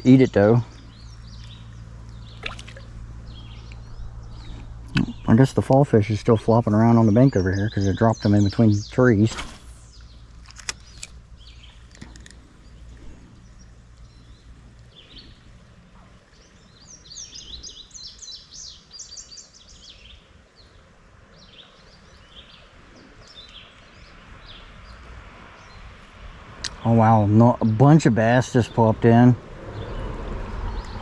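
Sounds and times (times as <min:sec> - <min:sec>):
faint low rumble: 0:00.0 - 0:17.8
songbird singing: 0:00.0 - 0:31.0.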